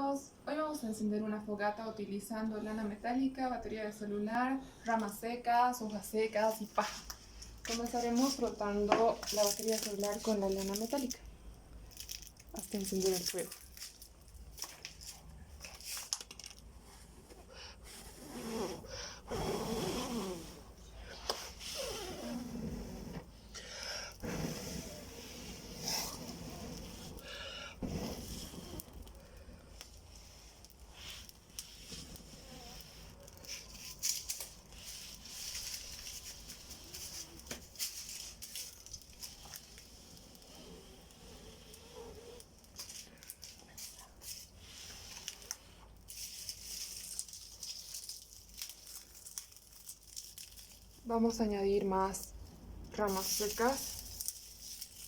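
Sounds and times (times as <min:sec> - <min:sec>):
steel wool crackling on battery: 0:06.8 - 0:11.2, 0:11.9 - 0:16.7, 0:24.1 - 0:52.3, 0:52.9 - 0:55.0.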